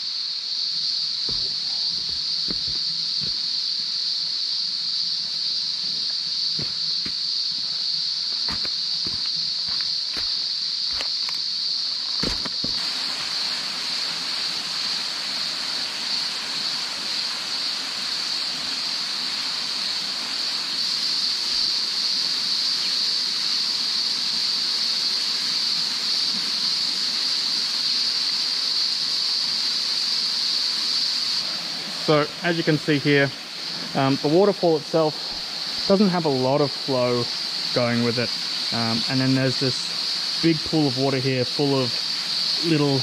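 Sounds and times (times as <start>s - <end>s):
cicadas droning: 0.0s - 43.0s
water running in a creek: 0.0s - 43.0s
footsteps: 1.3s - 3.4s, 5.2s - 7.8s, 8.4s - 11.1s, 12.2s - 12.8s.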